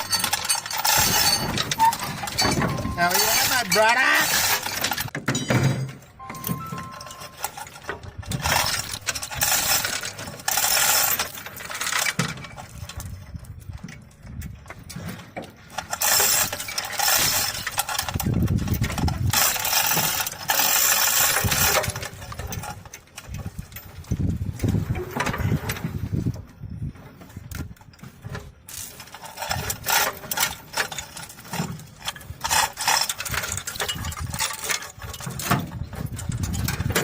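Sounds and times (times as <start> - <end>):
metallic rattling and clinking: 0.0 - 13.4, 15.7 - 24.5, 28.7 - 37.0.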